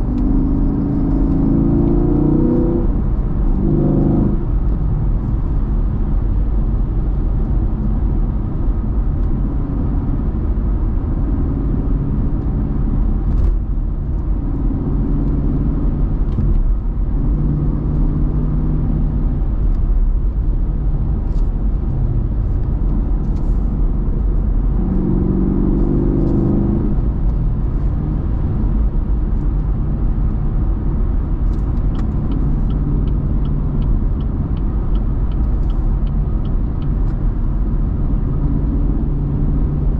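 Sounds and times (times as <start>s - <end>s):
car engine deep rumble: 0.0s - 39.9s
light regular ticking: 31.8s - 37.2s.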